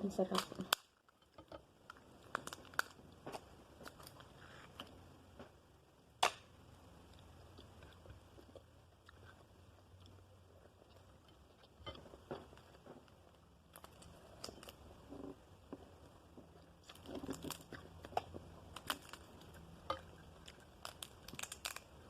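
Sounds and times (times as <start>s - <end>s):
chewing crab shell: 16.4s - 22.0s.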